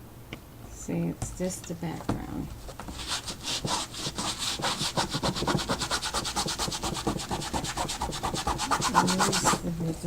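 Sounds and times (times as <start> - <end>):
scrubbing on paper: 2.6 - 9.7.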